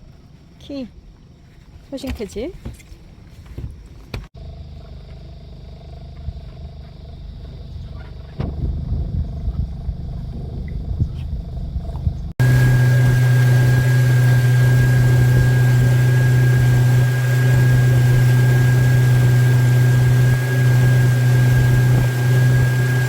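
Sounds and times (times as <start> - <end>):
steady machine hum: 4.4 - 23.0
thin high tone: 12.4 - 23.0.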